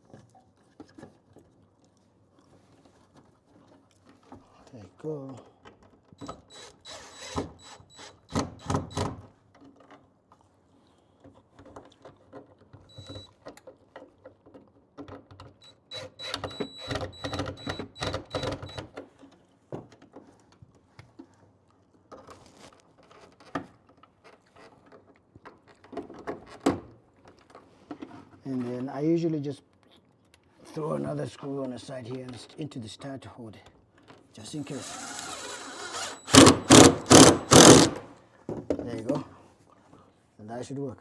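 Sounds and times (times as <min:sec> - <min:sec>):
small motor whining: 0:06.2 - 0:09.0, 0:34.6 - 0:38.1.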